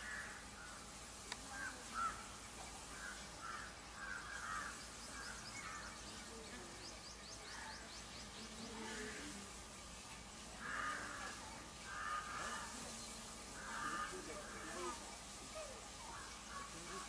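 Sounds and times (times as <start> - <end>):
bird cawing: 0.0 - 0.8, 1.5 - 6.0, 10.6 - 15.0, 16.0 - 17.0
bird chirping: 2.0 - 10.0.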